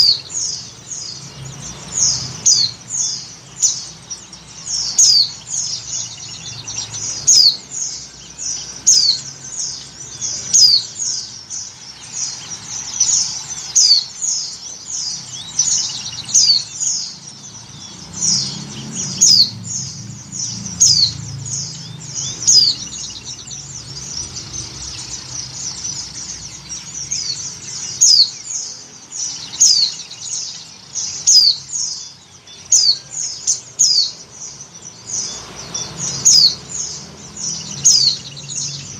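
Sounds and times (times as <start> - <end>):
bird chirping high thin calls: 0.0 - 38.9.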